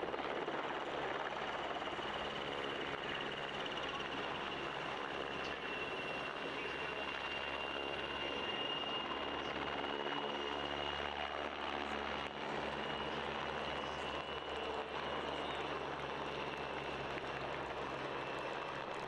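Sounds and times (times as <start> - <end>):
helicopter engine whine: 0.0 - 19.0
helicopter rotor noise: 0.0 - 19.0.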